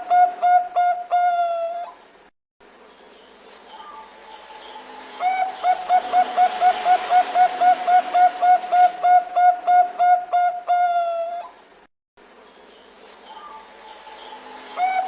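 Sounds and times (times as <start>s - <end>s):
dove cooing: 0.0s - 2.0s, 3.8s - 11.6s, 14.2s - 15.0s.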